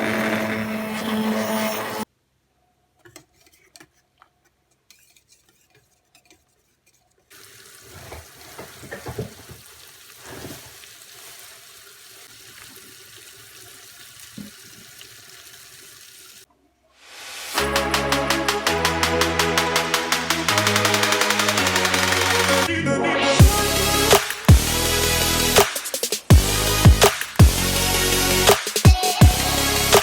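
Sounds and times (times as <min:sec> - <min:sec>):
tap water running into sink: 0:07.4 - 0:16.5.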